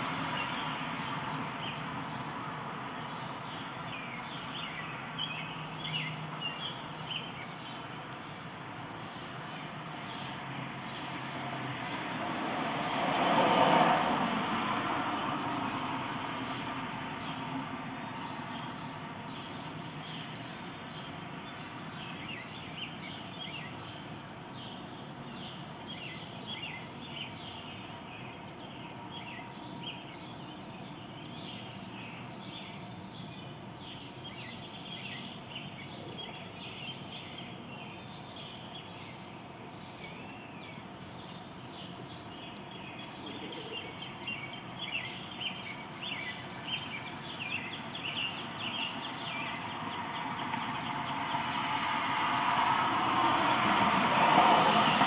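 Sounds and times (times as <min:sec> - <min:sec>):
outdoor background hiss: 0:00.0 - 0:55.0
small birds chirping: 0:03.0 - 0:12.0, 0:18.2 - 0:52.0.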